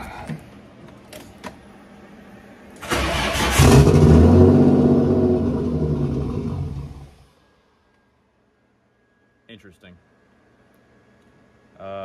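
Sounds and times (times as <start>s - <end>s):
engine cranking on starter: 2.8s - 4.6s.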